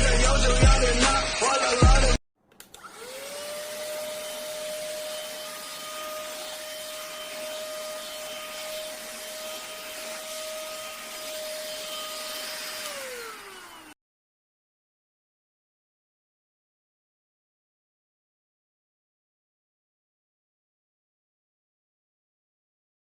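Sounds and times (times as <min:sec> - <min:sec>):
handheld vacuum motor whine: 0:00.6 - 0:14.0.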